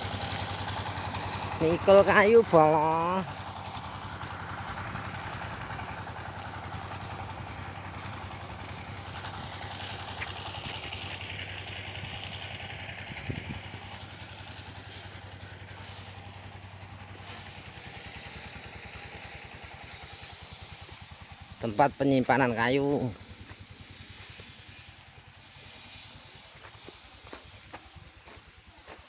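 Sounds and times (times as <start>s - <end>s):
small engine idling: 0.0s - 29.0s.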